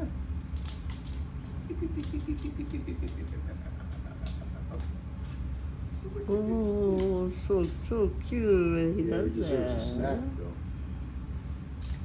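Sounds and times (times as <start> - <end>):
steady low hum: 0.0 - 12.0
dog nails clicking on hard floor: 0.4 - 6.0.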